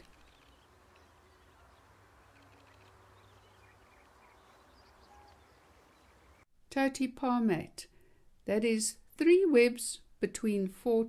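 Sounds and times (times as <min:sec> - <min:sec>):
faint bird chirps: 0:00.0 - 0:06.4.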